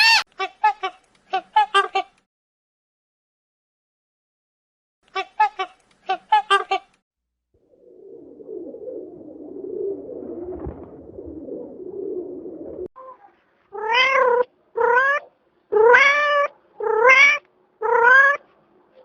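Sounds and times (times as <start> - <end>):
cat meowing: 13.0 - 18.4.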